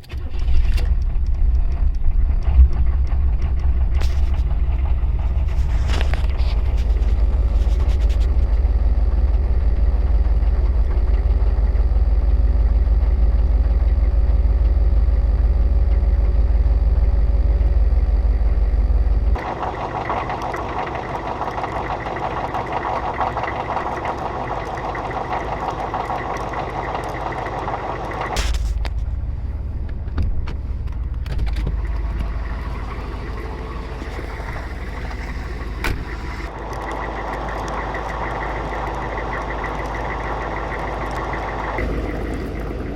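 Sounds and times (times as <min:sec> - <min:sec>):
diesel engine idling: 0:00.0 - 0:42.9
heavy low rumble: 0:00.0 - 0:42.9.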